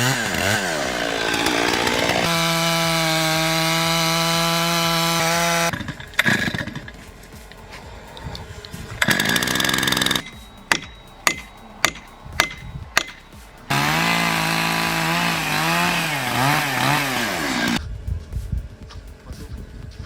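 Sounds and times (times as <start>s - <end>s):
chainsaw revving and cutting: 0.0s - 6.9s, 9.0s - 10.3s, 13.7s - 17.8s.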